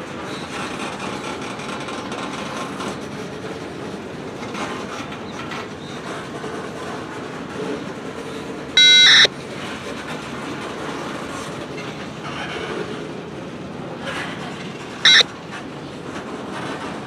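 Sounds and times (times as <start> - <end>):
freight train clickety-clack: 0.0 - 17.0
loud electronic beep: 8.8 - 9.3.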